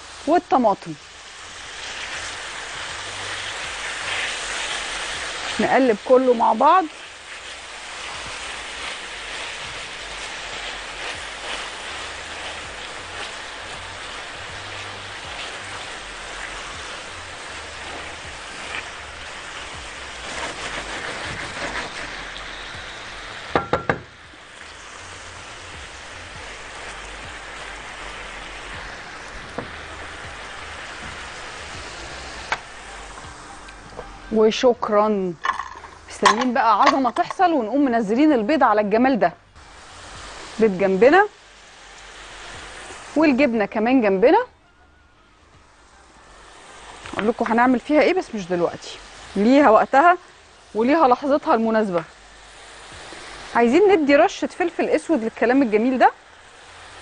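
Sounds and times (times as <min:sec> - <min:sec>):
food sizzling in a pan: 0:00.0 - 0:57.0
spatula stirring: 0:01.3 - 0:22.7
sharp knocks: 0:23.5 - 0:24.1.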